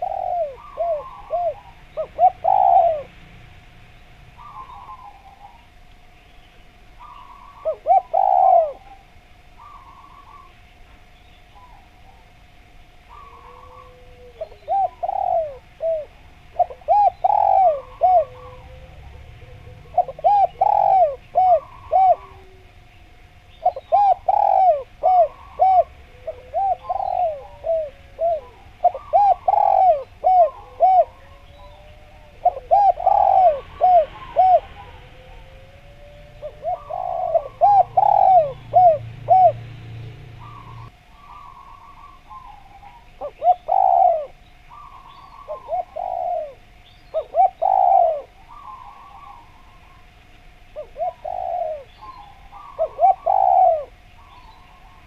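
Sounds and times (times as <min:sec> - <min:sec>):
dove cooing: 0:00.0 - 0:03.3, 0:04.3 - 0:05.8, 0:06.9 - 0:10.6, 0:11.5 - 0:55.0
faint steady tone: 0:00.0 - 0:55.0.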